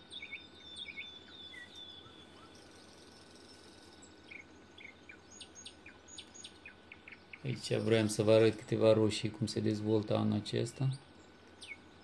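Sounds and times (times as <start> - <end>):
small birds chirping: 0.0 - 12.0
steady low hiss: 0.0 - 12.0.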